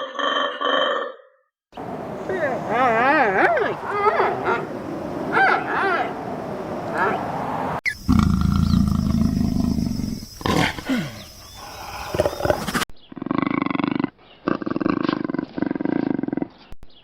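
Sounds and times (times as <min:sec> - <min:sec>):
repeated pulsing animal calls: 0:01.8 - 0:12.8
loud low animal call: 0:01.8 - 0:13.6.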